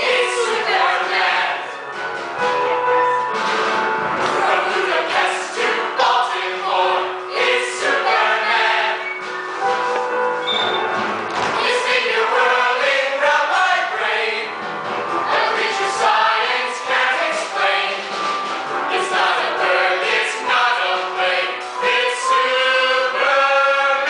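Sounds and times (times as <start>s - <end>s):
chorus singing a show tune: 0.0s - 1.8s, 4.3s - 9.2s, 11.5s - 14.6s, 15.2s - 18.2s, 18.9s - 24.0s
musical accompaniment: 0.0s - 24.0s.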